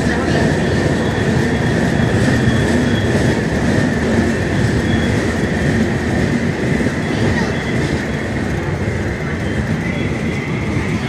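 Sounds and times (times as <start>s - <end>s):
train wheels rattling on rails: 0.0s - 11.0s
high-pitched squeal: 0.3s - 8.4s.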